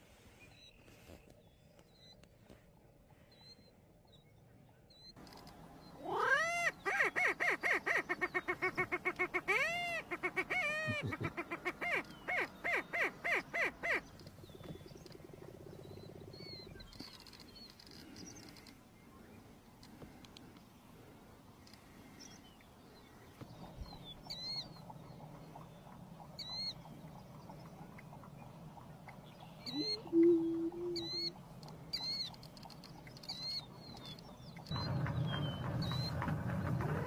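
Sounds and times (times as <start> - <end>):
bird whooping and cackling calls: 6.0 - 14.1, 29.6 - 32.3
faint pulsing bird call: 21.1 - 37.0.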